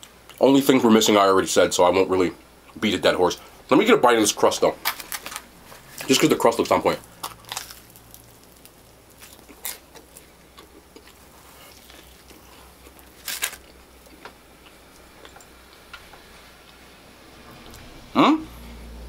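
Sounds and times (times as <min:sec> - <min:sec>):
chewing crunchy pizza crust: 0:04.8 - 0:15.9.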